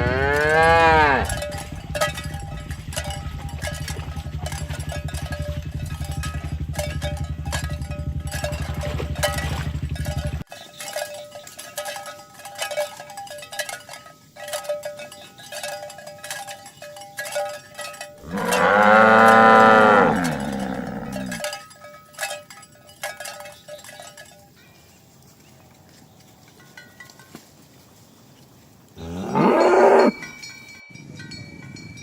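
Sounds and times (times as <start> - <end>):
cow mooing: 0.0 - 2.0, 18.2 - 21.4, 29.0 - 30.2
cattle bells clinking: 0.0 - 32.0.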